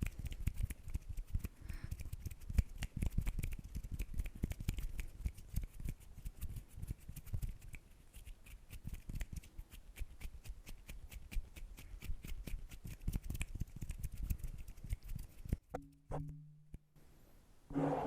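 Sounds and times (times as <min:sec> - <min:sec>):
hands clicking and tapping: 0:00.0 - 0:16.9.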